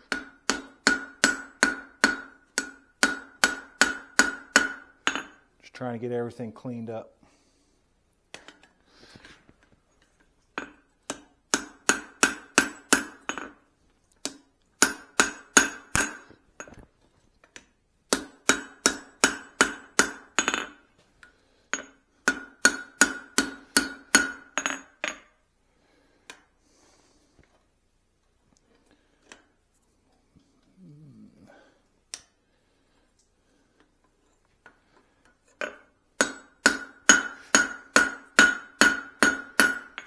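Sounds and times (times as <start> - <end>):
hammer striking steel on anvil: 0.1 - 5.4, 10.6 - 13.6, 14.3 - 16.3, 18.1 - 20.8, 21.7 - 25.3, 35.6 - 40.0.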